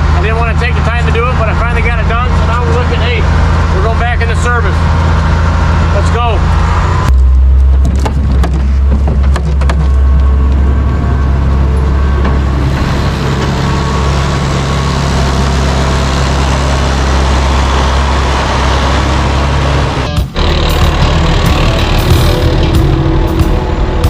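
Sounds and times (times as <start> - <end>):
tractor diesel engine drone: 0.0 - 24.0
sharp knocks and rattles: 7.1 - 10.7.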